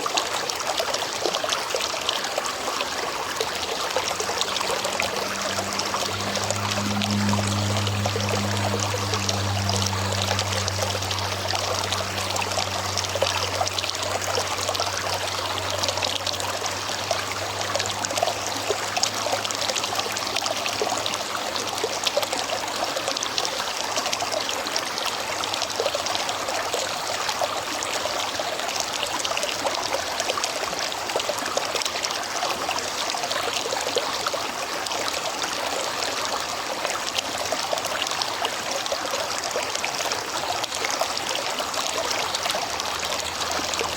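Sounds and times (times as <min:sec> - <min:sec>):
river water flowing: 0:00.0 - 0:43.9.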